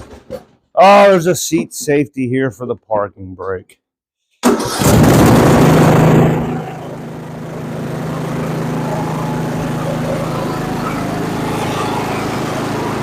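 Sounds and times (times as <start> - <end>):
lawn tractor engine running: 4.4 - 13.0.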